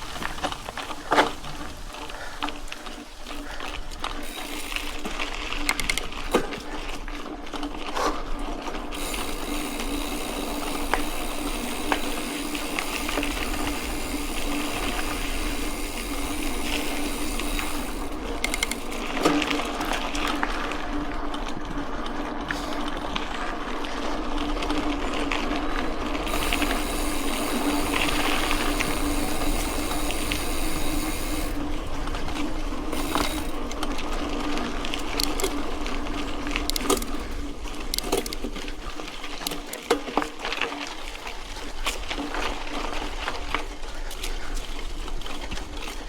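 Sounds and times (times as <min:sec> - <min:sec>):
bike mechanical buzz: 0:00.2 - 0:06.9, 0:07.6 - 0:21.0, 0:22.5 - 0:39.7
sharp clicks and rattles: 0:04.1 - 0:06.5, 0:08.7 - 0:19.6, 0:26.0 - 0:34.1, 0:35.0 - 0:35.7, 0:36.4 - 0:38.7
hiss: 0:09.0 - 0:19.0, 0:26.2 - 0:31.6, 0:33.0 - 0:33.6.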